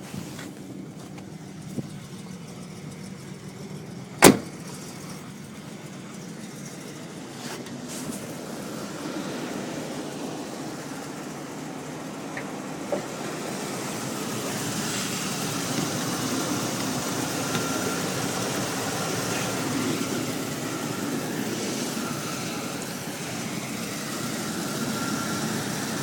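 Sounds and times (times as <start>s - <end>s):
car engine idling: 0.0s - 26.0s
sharp bang: 4.2s - 4.6s.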